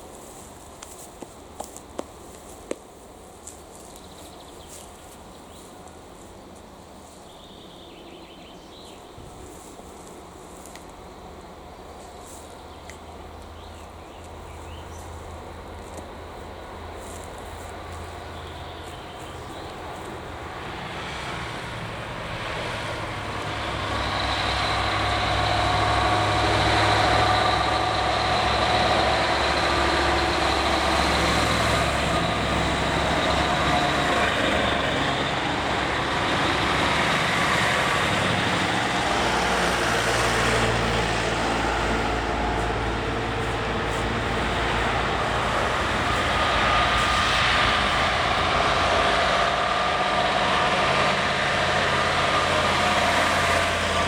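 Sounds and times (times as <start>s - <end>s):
truck engine running: 13.0s - 54.0s.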